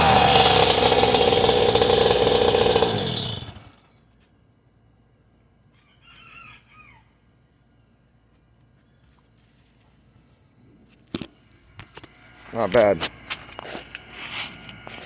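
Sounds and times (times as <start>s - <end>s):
two-stroke engine at high revs: 0.0s - 3.8s.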